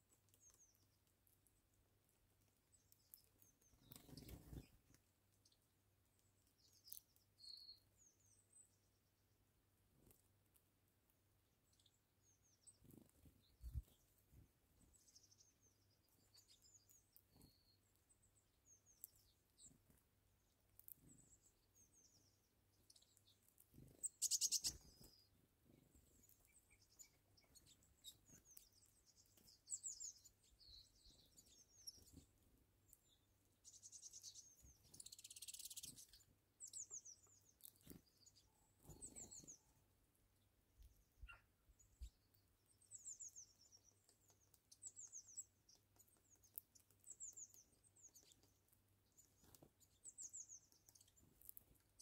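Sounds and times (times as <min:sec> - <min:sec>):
small birds chirping: 0:00.0 - 0:52.0
bird trill: 0:23.9 - 0:25.3, 0:33.6 - 0:39.8, 0:41.2 - 0:41.6.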